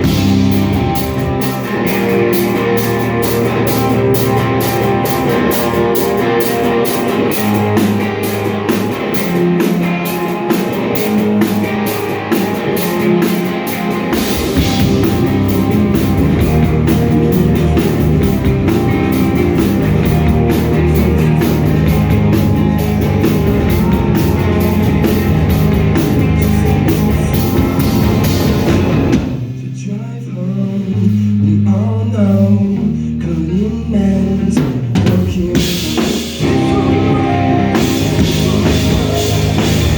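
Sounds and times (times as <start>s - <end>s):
live rock band playing: 0.0s - 39.9s
person singing: 16.5s - 28.7s, 29.4s - 39.9s.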